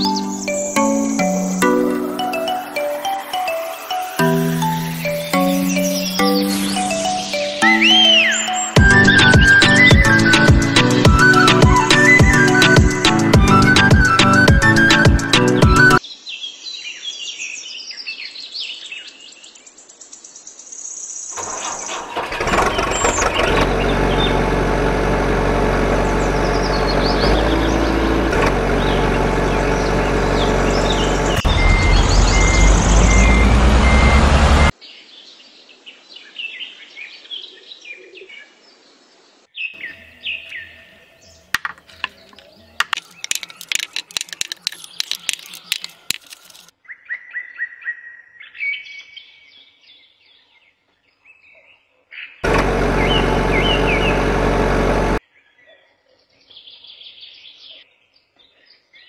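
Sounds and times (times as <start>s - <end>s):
birds chirping: 0.0s - 55.5s
truck engine revving: 8.8s - 16.0s, 21.4s - 34.7s, 52.4s - 55.2s
marbles clattering into wooden box: 41.6s - 46.7s.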